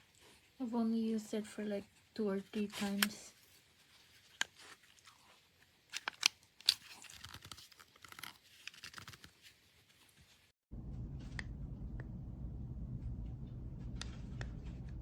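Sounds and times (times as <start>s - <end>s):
steady low hum: 10.7s - 15.0s.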